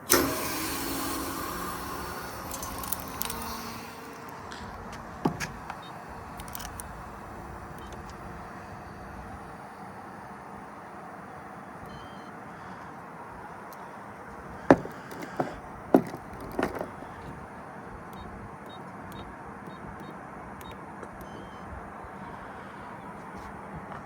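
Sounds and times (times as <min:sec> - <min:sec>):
sharp clunks: 0:00.0 - 0:08.3, 0:14.6 - 0:17.4
steady vehicle noise: 0:00.9 - 0:24.0.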